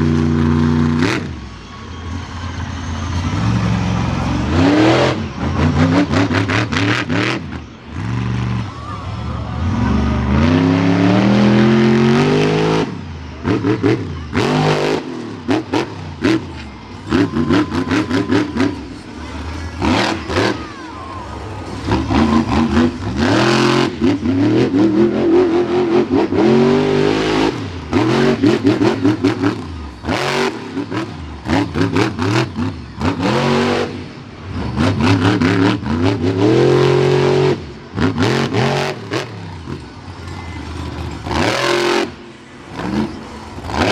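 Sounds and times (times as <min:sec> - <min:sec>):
truck engine revving: 0:00.0 - 0:43.9.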